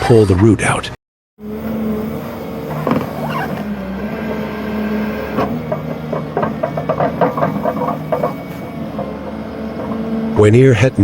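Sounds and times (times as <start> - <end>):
machine engine running: 1.4 - 11.0
sharp knocks and cracks: 5.4 - 10.2.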